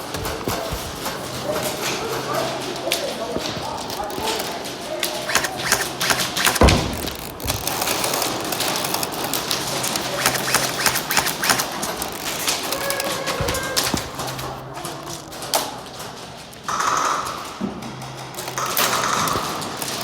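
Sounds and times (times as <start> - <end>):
sharp clicks and snaps: 2.9 - 15.2
heavy thump: 5.2 - 7.7.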